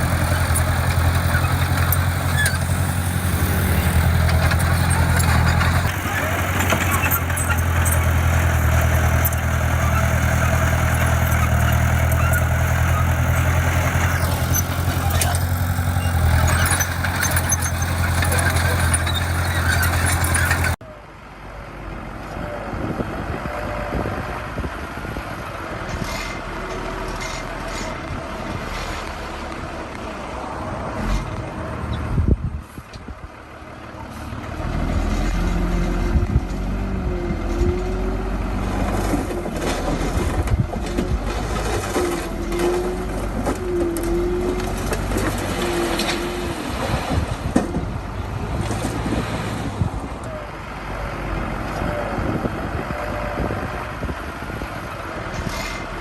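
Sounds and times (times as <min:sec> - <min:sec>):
machinery clanks and knocks: 0:00.0 - 0:20.8
diesel engine running: 0:00.0 - 0:30.8, 0:31.4 - 0:56.0.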